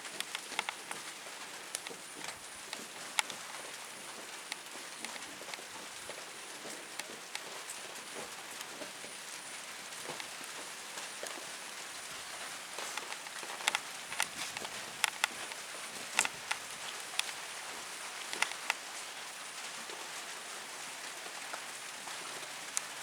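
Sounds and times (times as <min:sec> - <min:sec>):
steady outdoor hiss: 0:00.0 - 0:23.0
light taps and clicks: 0:00.1 - 0:07.6, 0:12.7 - 0:17.4, 0:18.2 - 0:18.8.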